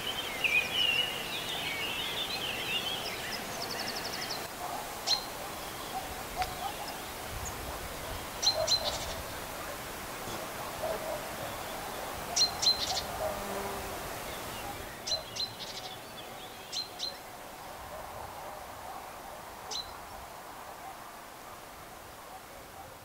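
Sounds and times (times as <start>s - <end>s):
birds chirping: 0.0s - 13.3s, 14.1s - 17.3s.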